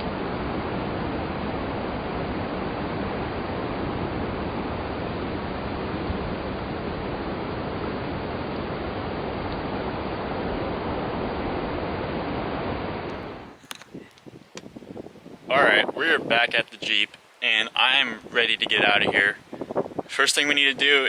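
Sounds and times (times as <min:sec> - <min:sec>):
ocean surf: 0:00.0 - 0:13.6.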